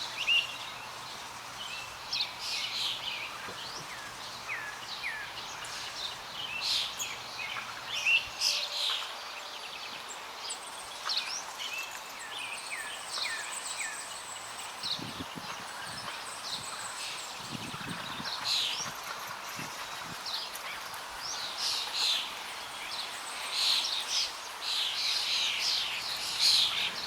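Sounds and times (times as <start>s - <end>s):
wild birds chirping: 0.0s - 27.0s.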